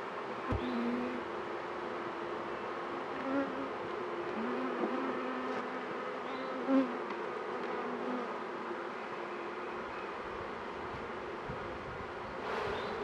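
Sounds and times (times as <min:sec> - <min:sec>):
bees buzzing: 0:00.4 - 0:09.6.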